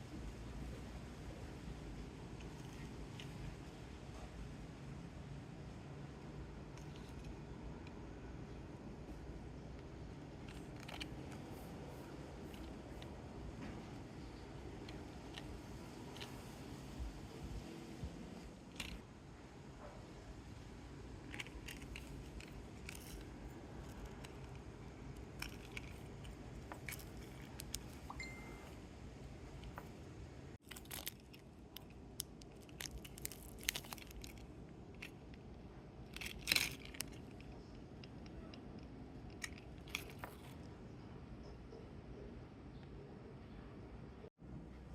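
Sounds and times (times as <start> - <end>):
toy packaging crinkling: 21.3 - 28.1, 30.6 - 35.2, 36.1 - 37.5, 39.3 - 40.6
plastic capsules clicking: 21.3 - 28.2, 30.6 - 35.4, 36.0 - 40.6.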